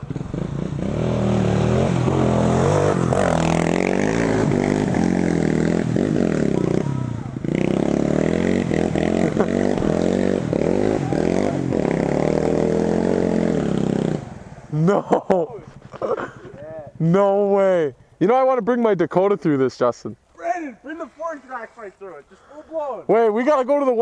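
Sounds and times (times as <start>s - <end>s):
dirt bike engine revving: 0.0s - 17.1s.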